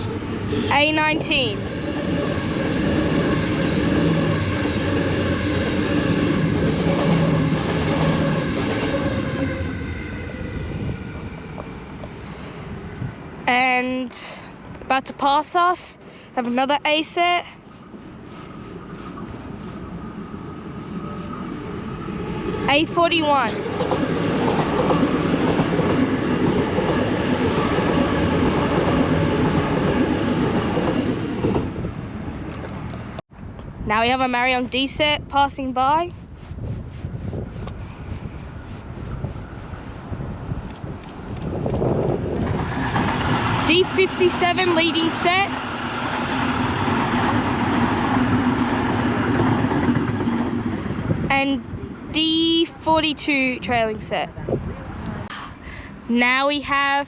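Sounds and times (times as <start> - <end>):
train wheels and motors rumbling: 17.8 - 55.5.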